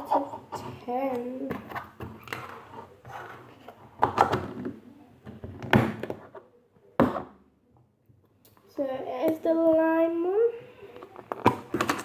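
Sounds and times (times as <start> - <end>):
plastic containers knocking: 11.2 - 12.0.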